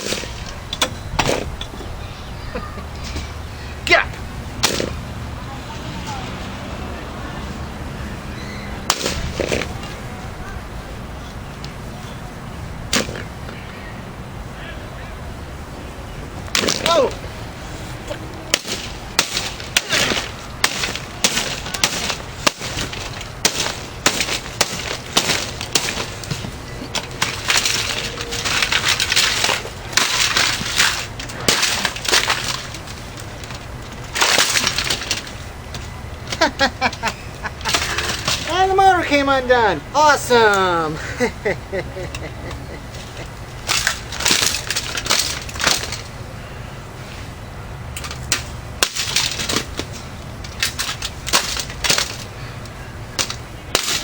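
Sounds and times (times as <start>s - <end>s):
fan being smashed: 0.0s - 1.7s, 4.6s - 5.1s, 8.8s - 10.1s, 12.9s - 13.7s, 16.4s - 38.9s, 42.1s - 46.2s, 48.0s - 54.0s
sharp knocks: 4.6s - 5.0s, 8.8s - 10.0s
plastic crunching and cracking: 18.5s - 38.6s.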